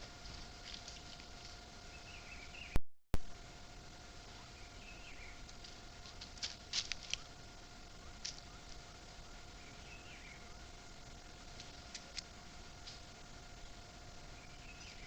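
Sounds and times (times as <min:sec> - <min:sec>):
birds twittering: 0:00.0 - 0:02.8, 0:04.2 - 0:15.0
steady high hum: 0:00.0 - 0:15.0
sharp crackles: 0:05.1 - 0:09.6, 0:10.6 - 0:13.7.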